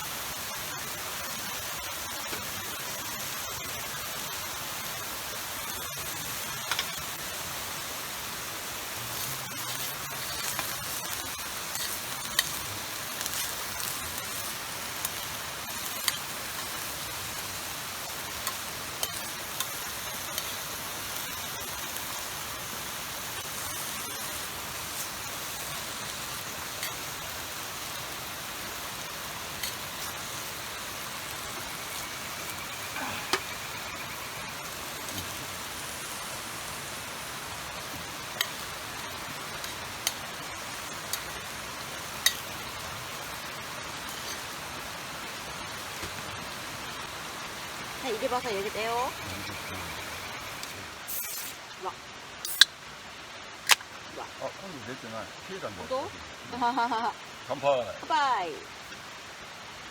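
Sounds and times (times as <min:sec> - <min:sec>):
steady rushing hiss: 0:00.0 - 0:59.9
wood fire pops: 0:09.0 - 0:34.0, 0:52.4 - 0:52.8, 0:53.6 - 0:54.0.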